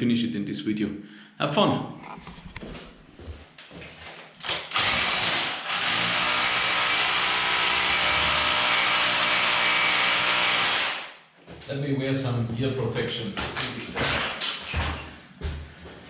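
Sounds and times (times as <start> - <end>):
rotary hammer drill into concrete: 4.6 - 11.2.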